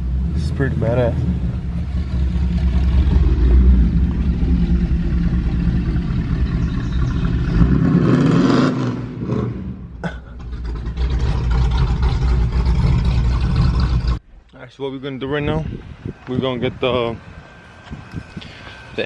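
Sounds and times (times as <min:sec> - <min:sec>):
vehicle engine running: 0:00.0 - 0:08.3, 0:10.3 - 0:14.2.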